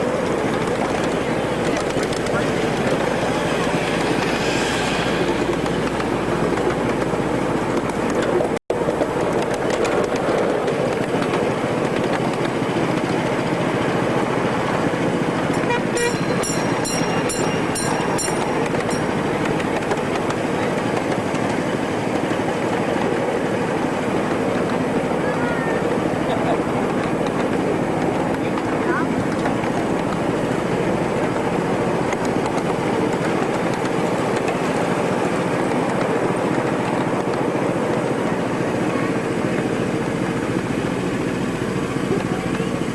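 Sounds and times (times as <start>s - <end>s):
miniature train rumbling on track: 0.0s - 42.9s
high ringing strikes: 15.5s - 19.9s.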